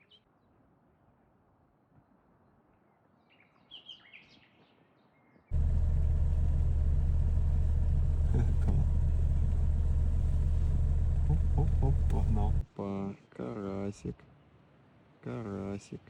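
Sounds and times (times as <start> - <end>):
low rumble with deep hum: 5.5 - 12.6.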